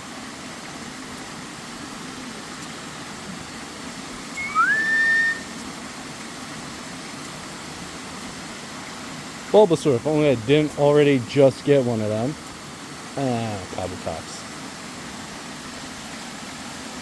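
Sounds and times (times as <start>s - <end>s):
waterfall rushing: 0.0s - 17.0s
whistle: 4.4s - 5.5s.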